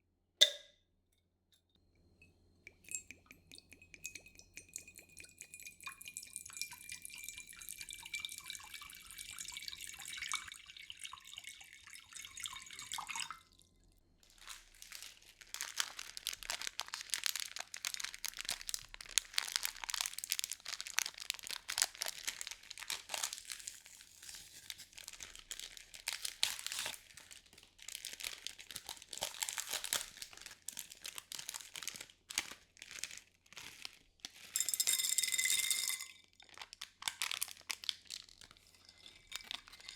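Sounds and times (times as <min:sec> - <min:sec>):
crinkling handled objects: 0:14.2 - 0:34.9, 0:36.3 - 0:39.9.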